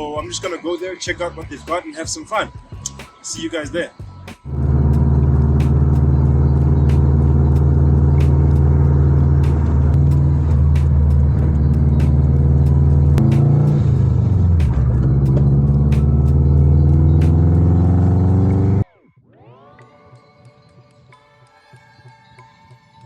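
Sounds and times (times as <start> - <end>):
car engine droning: 4.5 - 18.8.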